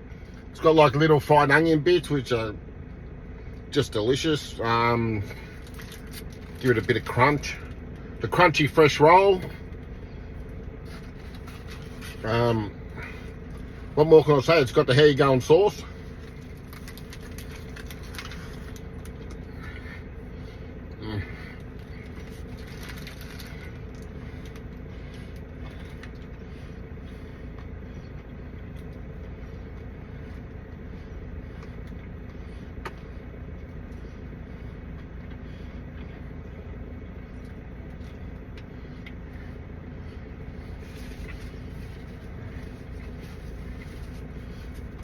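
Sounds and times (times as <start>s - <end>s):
faint even hum: 0.0s - 45.0s
motor vehicles rumbling: 0.0s - 45.0s.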